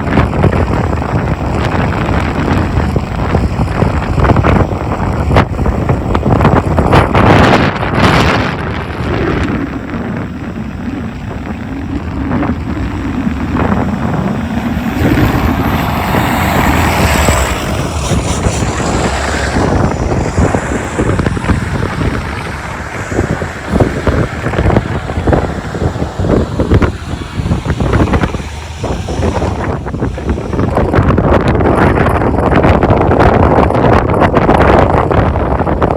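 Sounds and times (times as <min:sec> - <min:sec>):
gusty wind buffeting microphone: 0:00.0 - 0:35.9
street traffic: 0:00.0 - 0:35.9.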